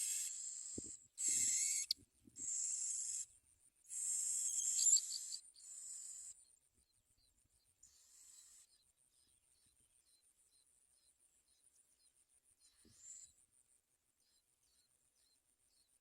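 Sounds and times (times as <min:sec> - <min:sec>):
nestlings hissing begging calls: 0:00.0 - 0:03.2, 0:03.9 - 0:06.0.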